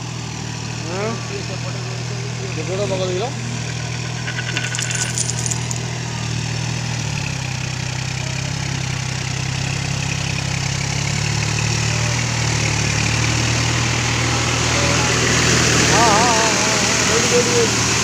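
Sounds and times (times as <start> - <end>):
rapid high rattle: 3.5 - 5.8.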